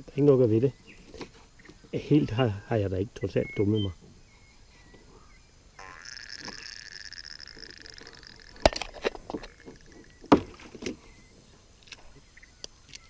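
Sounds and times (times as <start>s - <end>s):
knocks and thumps against canoe: 8.6s - 11.2s.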